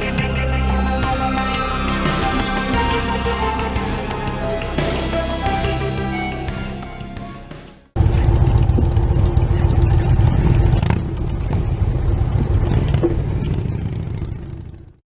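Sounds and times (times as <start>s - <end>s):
closing music: 0.0s - 8.0s
motorcycle engine running: 8.0s - 15.0s.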